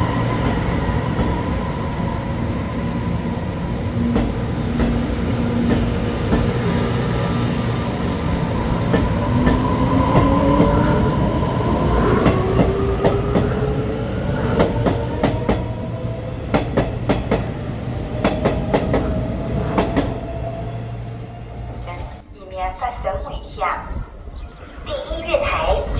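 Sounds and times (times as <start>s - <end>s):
train rumble and motor whine: 0.0s - 22.2s
wheels clacking over rail joints: 3.0s - 22.2s.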